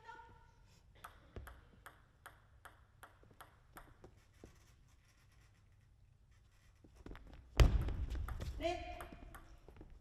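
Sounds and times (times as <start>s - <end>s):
table tennis ball bouncing: 1.0s - 4.2s, 7.8s - 10.0s.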